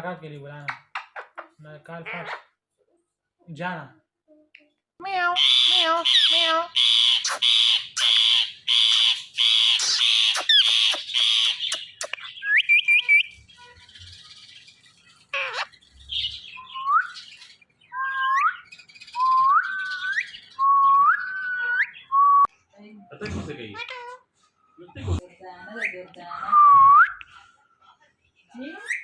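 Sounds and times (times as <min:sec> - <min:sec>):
parrot squawking: 0:00.9 - 0:02.6, 0:05.0 - 0:14.4, 0:15.1 - 0:22.1, 0:23.7 - 0:24.3.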